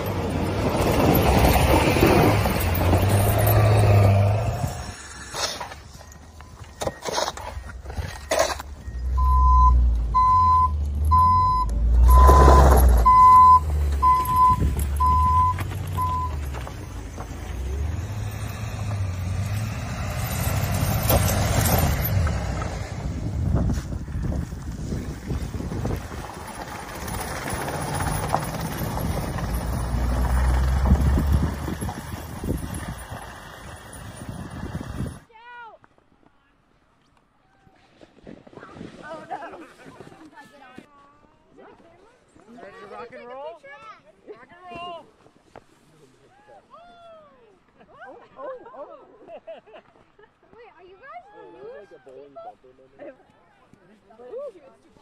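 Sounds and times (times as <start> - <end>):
reversing alarm beeping: 5.8 - 16.4
deep engine rumble: 7.6 - 35.2
wind on microphone: 22.9 - 26.4.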